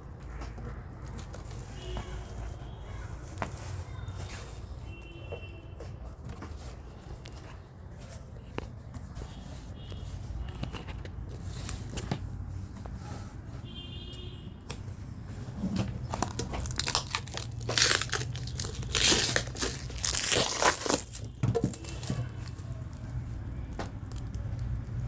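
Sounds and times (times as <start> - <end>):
packaging crinkling and tearing: 15.8 - 24.7.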